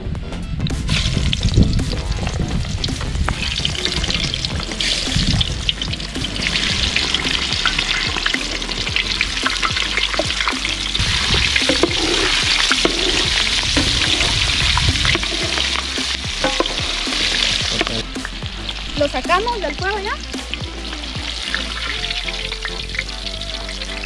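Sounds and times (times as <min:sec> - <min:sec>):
frying sizzle with popping: 0:00.7 - 0:24.0
wooden paddle knocking in pot: 0:09.6 - 0:17.9.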